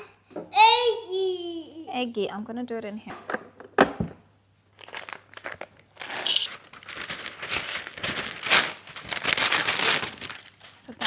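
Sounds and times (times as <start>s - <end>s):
paper tearing: 4.8s - 10.5s
paper crinkling and rustling: 4.8s - 11.0s.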